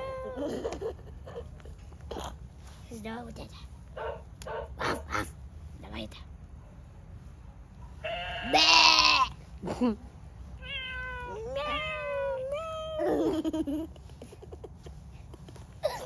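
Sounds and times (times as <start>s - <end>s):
child meowing like a cat: 0.0s - 0.5s, 10.7s - 13.2s.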